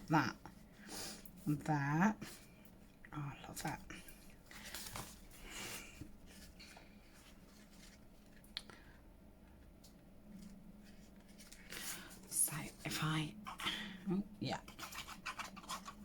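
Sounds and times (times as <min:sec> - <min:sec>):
paper rustling and rubbing: 0:04.4 - 0:08.4, 0:10.4 - 0:13.6, 0:14.6 - 0:16.0.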